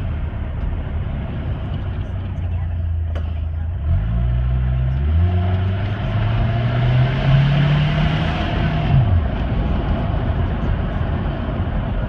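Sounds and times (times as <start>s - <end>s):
turbocharged engine revving under load: 3.8s - 11.6s.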